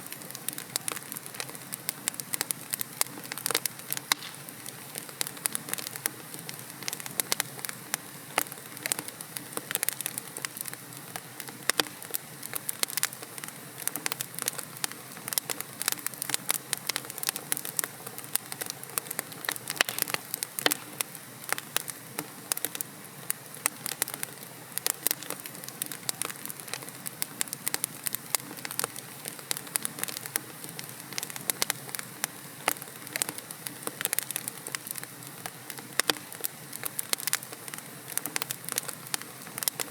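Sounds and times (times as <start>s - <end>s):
soft hiss of flames: 0.0s - 39.9s
fire pops and snaps: 0.1s - 39.9s.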